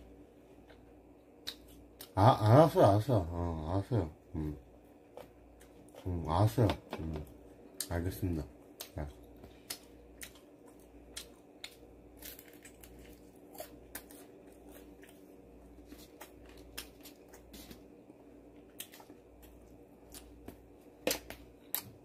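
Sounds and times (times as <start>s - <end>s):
faint steady hum: 0.0s - 22.0s
chewing with wet clicks and crunches: 8.6s - 17.9s, 18.5s - 22.0s.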